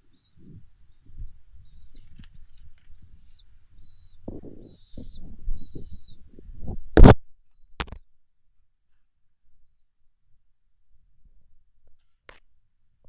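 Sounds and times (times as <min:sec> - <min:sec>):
small bird chirping: 0:00.0 - 0:06.7.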